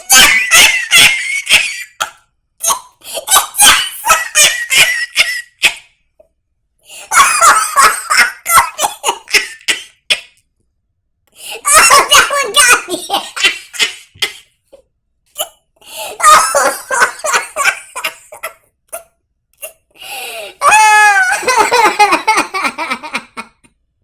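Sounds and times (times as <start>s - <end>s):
person laughing hard: 0.0s - 2.2s, 3.2s - 5.9s, 7.0s - 10.3s, 11.4s - 14.5s, 15.9s - 19.0s, 19.6s - 23.7s.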